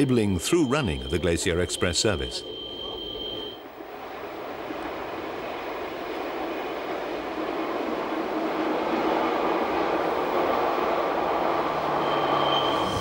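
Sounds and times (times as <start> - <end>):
train wheels rolling on rails: 3.8 - 13.0.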